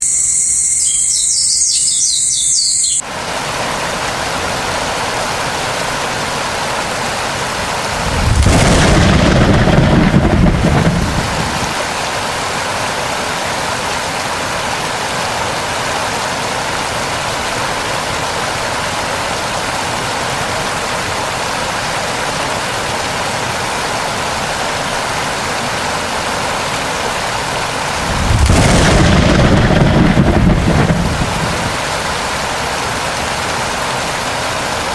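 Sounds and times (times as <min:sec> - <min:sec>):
high chirping: 0:00.0 - 0:03.0
heavy rain: 0:00.6 - 0:34.9
thunder rolling: 0:07.9 - 0:11.8, 0:27.9 - 0:31.9.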